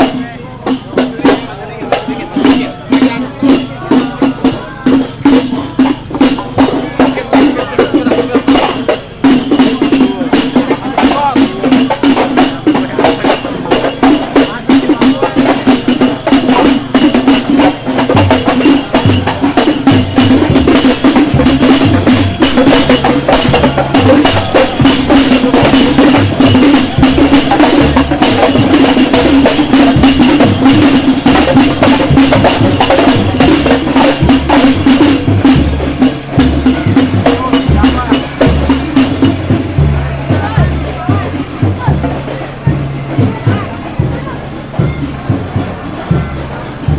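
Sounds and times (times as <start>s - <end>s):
jingling tambourine: 0.0s - 46.9s
stepping bass line: 18.2s - 46.9s.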